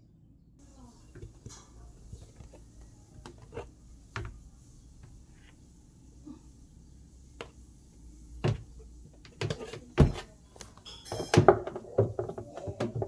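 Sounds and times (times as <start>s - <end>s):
faint knocks and clicks: 8.4s - 13.0s.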